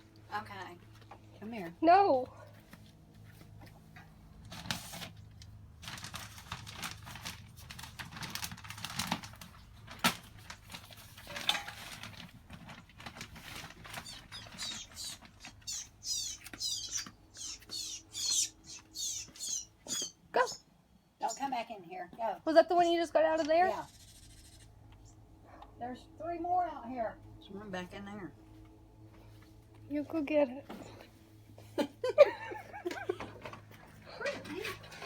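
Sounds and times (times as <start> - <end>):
rustling and scratching: 2.5 - 20.2, 33.2 - 35.0
small bird cheeping: 14.0 - 20.6, 23.8 - 25.2.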